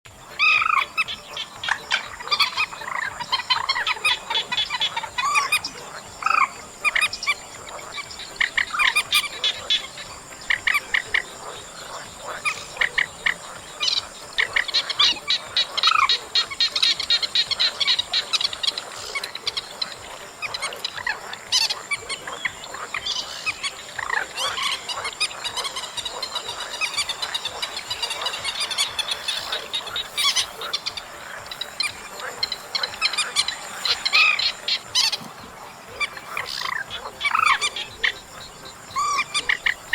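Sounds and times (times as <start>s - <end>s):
harsh croaking bird calls: 0.0s - 39.9s
high insect trill: 0.1s - 39.9s.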